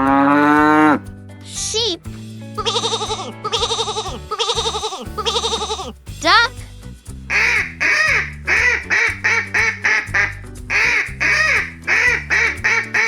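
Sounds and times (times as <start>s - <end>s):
background music: 0.0s - 13.0s
duck quacking: 7.3s - 13.0s.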